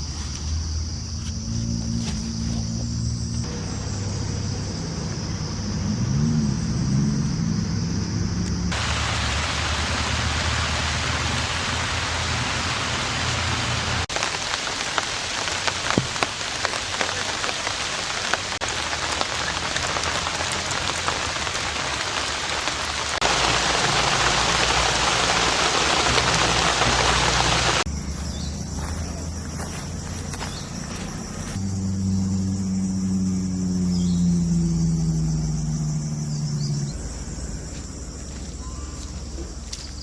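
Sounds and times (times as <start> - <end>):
heavy rain hiss: 3.4 - 7.0, 8.6 - 27.9
raindrops ticking close by: 8.4 - 27.9.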